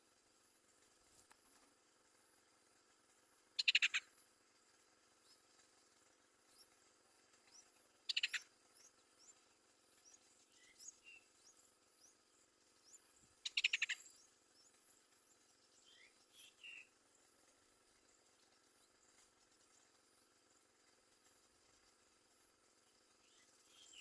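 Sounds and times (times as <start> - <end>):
bird rapid chattering: 3.6 - 4.1, 8.0 - 8.5, 13.4 - 14.2
faint high bird chirps: 3.6 - 4.3, 6.4 - 17.1, 22.8 - 24.0.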